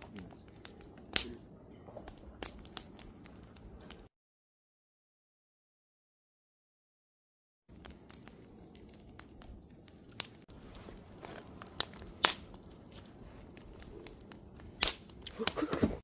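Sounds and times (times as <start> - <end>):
campfire crackling: 0.0 - 4.1, 7.7 - 16.0.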